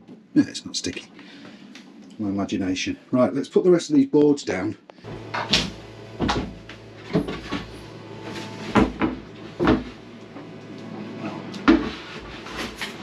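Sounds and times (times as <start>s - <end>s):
wooden boards knocking: 8.7s - 9.9s.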